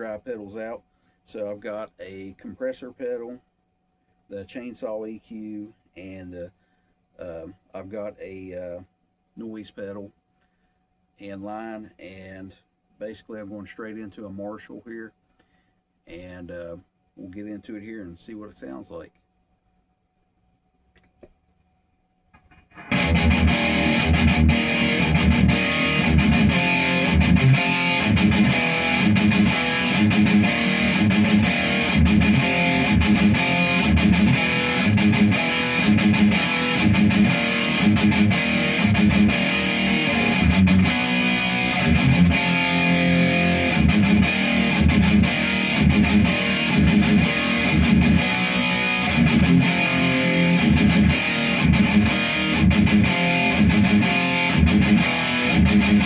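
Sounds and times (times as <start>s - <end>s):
distorted electric guitar riffing: 22.7s - 56.0s.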